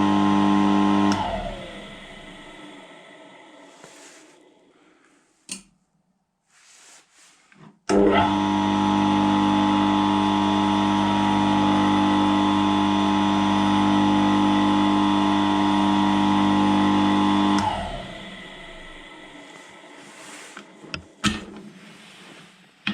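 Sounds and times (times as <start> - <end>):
electric vibrating plate running: 0.0 - 3.6, 8.2 - 21.3.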